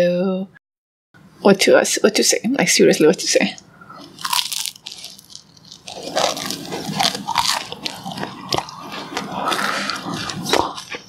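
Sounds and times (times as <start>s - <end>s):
crunchy chewing of toast: 4.0s - 11.0s.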